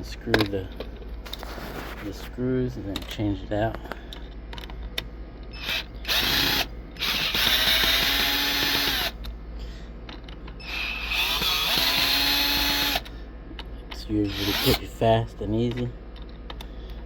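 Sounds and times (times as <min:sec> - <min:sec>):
cordless drill motor winding: 0:05.6 - 0:09.2, 0:10.6 - 0:13.1, 0:14.2 - 0:14.9.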